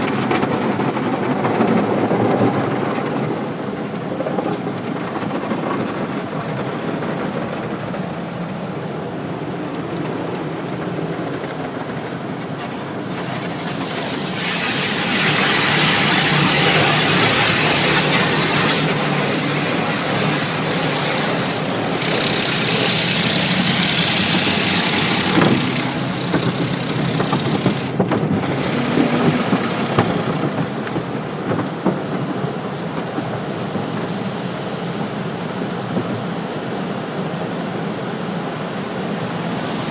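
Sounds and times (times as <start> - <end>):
car wash equipment rumble and hum: 5.9 - 39.9
hissing rush of spray: 12.6 - 31.6.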